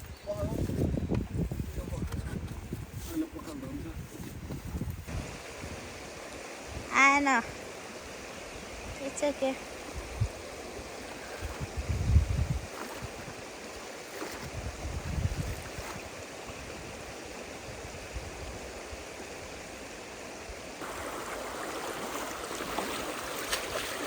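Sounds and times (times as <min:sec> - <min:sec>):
river water rushing: 0:19.2 - 0:24.0.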